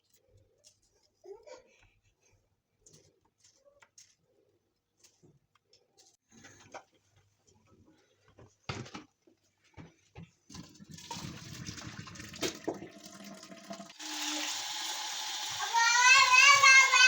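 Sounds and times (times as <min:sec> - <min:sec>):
water running: 0:10.4 - 0:17.0.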